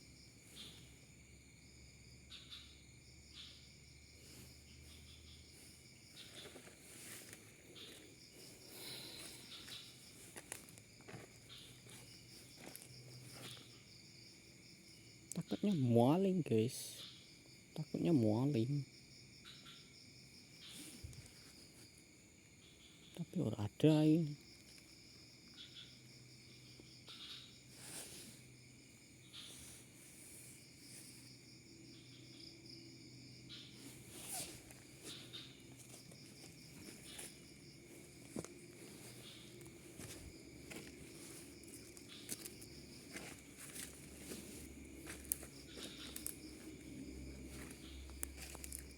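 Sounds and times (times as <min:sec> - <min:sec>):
insects chirring: 0:00.0 - 0:48.9
footsteps rustling through undergrowth: 0:04.1 - 0:14.0, 0:33.5 - 0:48.9.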